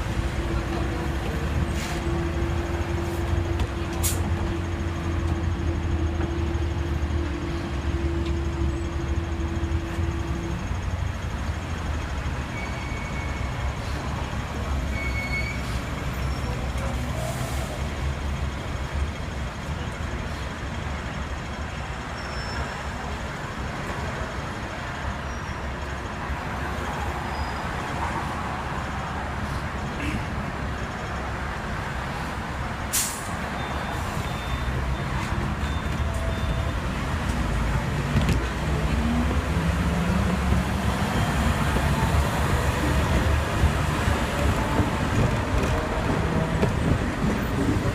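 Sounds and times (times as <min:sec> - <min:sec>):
tram motor and wheels rumbling: 0:00.0 - 0:47.9.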